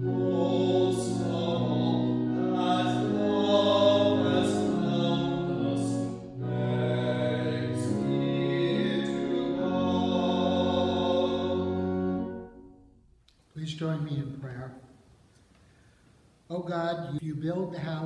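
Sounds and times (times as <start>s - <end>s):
sacred vocal singing: 0.0s - 12.3s.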